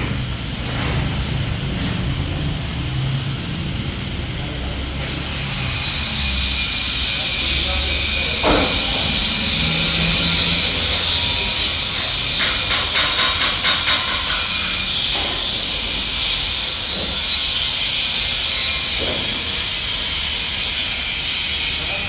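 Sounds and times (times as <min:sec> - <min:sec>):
wood chipper running: 0:01.0 - 0:12.5.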